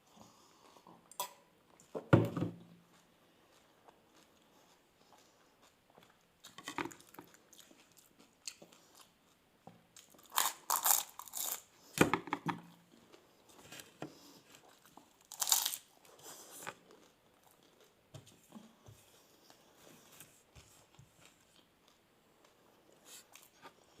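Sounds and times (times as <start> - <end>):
person chewing crunchy food: 2.6 - 12.0, 12.6 - 18.1.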